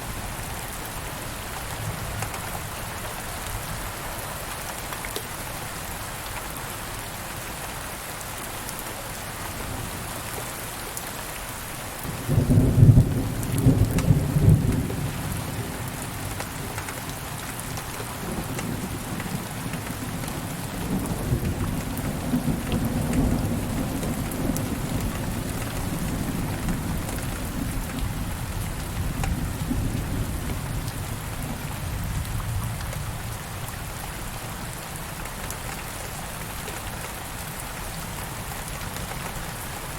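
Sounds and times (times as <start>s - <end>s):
steady rain: 0.0s - 39.9s
thunderclap and rolling thunder: 12.1s - 16.8s, 18.1s - 33.3s.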